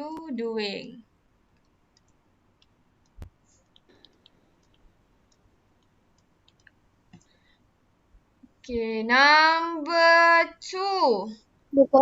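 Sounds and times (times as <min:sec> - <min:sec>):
faint clicks: 0:01.5 - 0:07.3.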